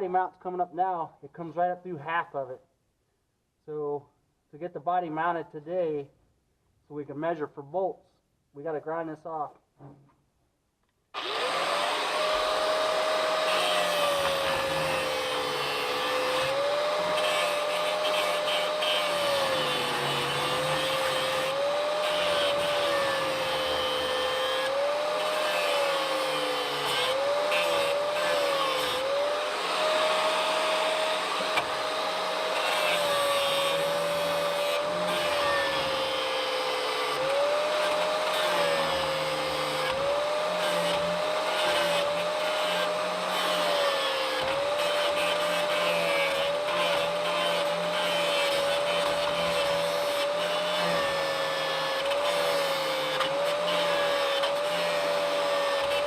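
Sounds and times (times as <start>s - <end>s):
angle grinder grinding metal: 11.2s - 56.0s.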